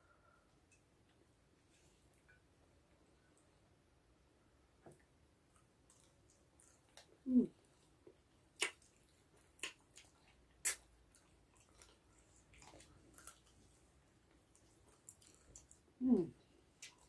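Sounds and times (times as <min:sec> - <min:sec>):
wet chewing and sucking: 0:05.5 - 0:17.0
mouth smacking clicks: 0:10.6 - 0:10.8.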